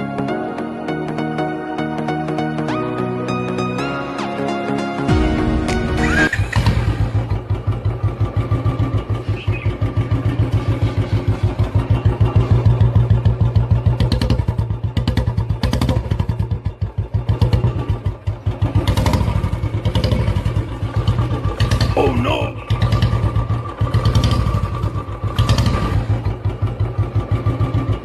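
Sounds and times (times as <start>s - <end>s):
motorcycle engine running: 6.2s - 28.0s.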